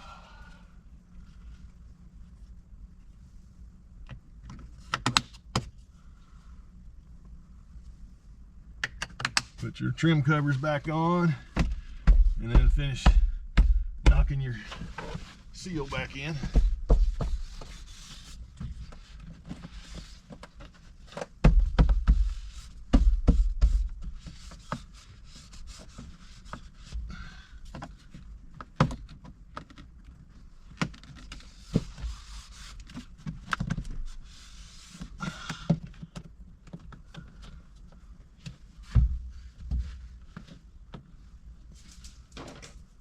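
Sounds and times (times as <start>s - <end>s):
heavy thumps: 11.5s - 17.8s, 21.4s - 24.2s.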